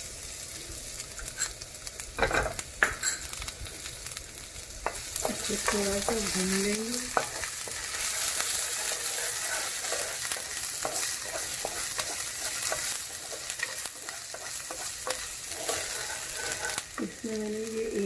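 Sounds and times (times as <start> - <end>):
ginger and garlic sizzling in oil: 0.0 - 18.0
spatula scraping a pan: 4.8 - 17.1.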